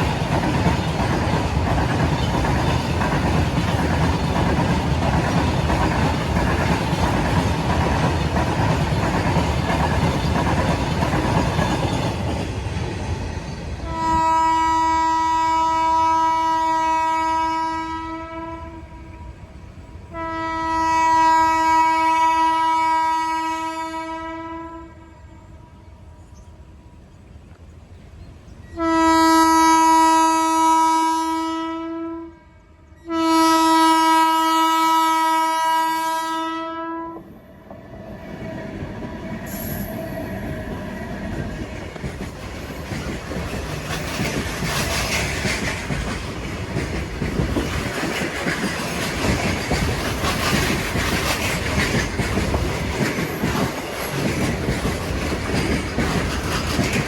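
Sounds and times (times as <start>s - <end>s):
train wheels clacking on rails: 0.0s - 14.2s, 37.2s - 57.0s
locomotive horn blasts: 13.9s - 19.3s, 20.1s - 25.9s, 28.7s - 37.2s.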